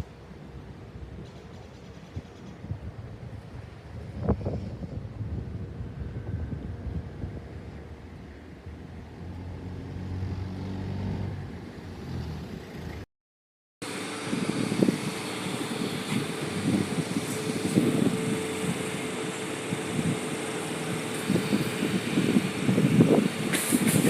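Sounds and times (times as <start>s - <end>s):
wind buffeting microphone: 1.8s - 9.1s, 14.1s - 24.0s
engine hum: 3.3s - 13.1s, 13.8s - 24.0s.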